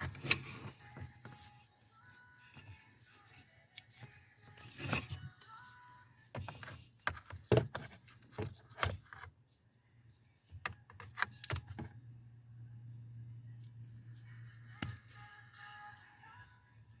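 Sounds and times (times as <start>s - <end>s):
low steady hum: 8.6s - 17.0s.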